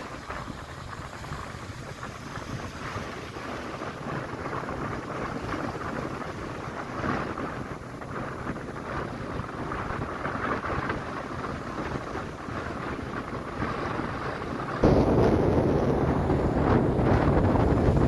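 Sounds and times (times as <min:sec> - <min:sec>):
wind rushing: 0:00.0 - 0:18.0
low rumble: 0:14.8 - 0:18.0.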